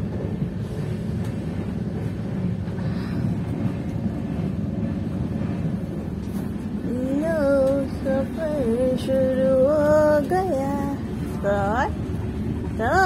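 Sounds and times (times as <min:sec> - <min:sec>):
moving train rumbling: 0:00.0 - 0:13.0.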